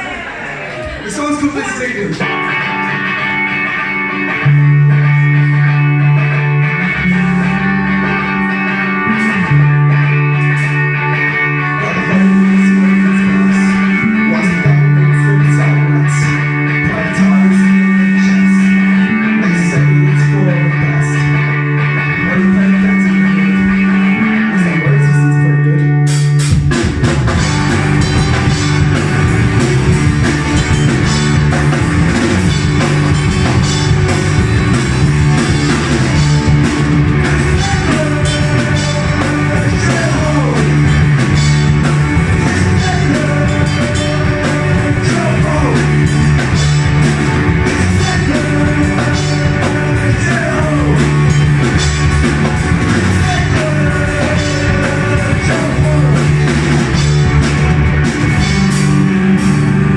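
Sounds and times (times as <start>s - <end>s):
live rock band: 0.0s - 59.9s
person singing: 11.5s - 26.1s, 37.3s - 46.8s, 47.6s - 52.0s, 53.0s - 57.1s.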